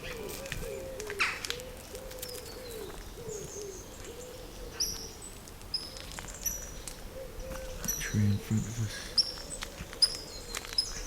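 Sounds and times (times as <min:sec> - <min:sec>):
pigeon cooing: 0:00.0 - 0:05.0
small birds chirping: 0:00.0 - 0:11.0.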